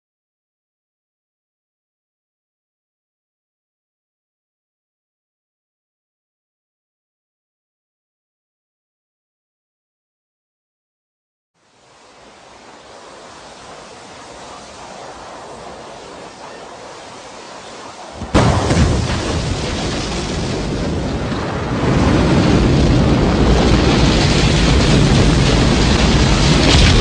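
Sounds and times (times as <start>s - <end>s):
rocket launch roar: 11.8s - 27.0s.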